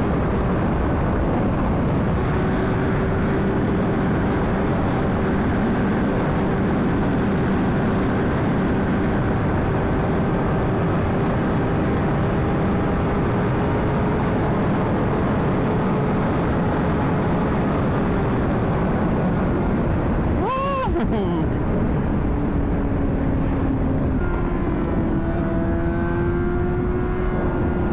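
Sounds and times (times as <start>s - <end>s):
wind rush over helmet mic: 0.0s - 27.9s
motorcycle engine droning: 20.2s - 27.9s.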